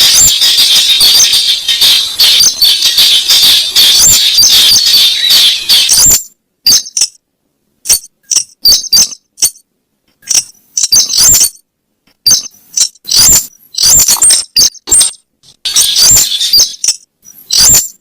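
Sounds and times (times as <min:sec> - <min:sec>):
bird call with sharp clinking notes: 0:12.3 - 0:18.0.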